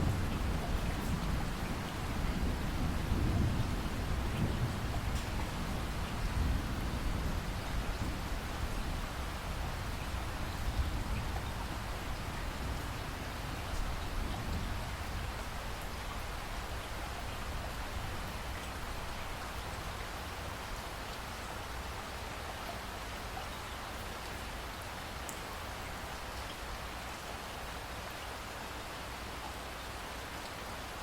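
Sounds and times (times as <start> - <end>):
low thunder rumble: 0.0 - 9.0
heavy rain falling: 0.0 - 29.3.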